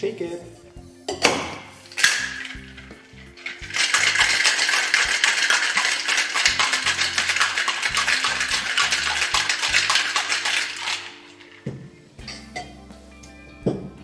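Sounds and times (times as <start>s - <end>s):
background music: 0.0s - 14.0s
ice rattling in cocktail shaker: 1.8s - 11.7s.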